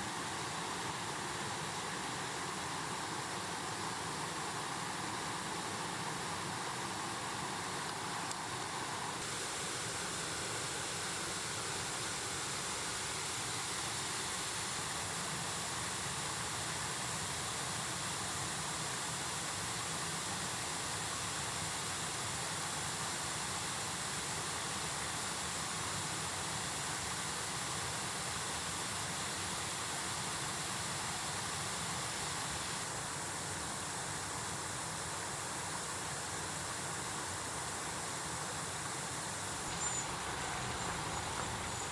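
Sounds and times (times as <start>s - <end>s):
mountain stream rushing: 0.0s - 30.1s, 30.8s - 41.9s.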